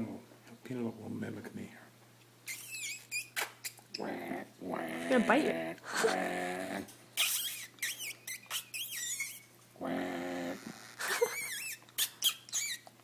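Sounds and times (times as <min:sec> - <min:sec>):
pet bird chattering: 0:02.5 - 0:03.8, 0:07.2 - 0:09.4, 0:11.3 - 0:12.9.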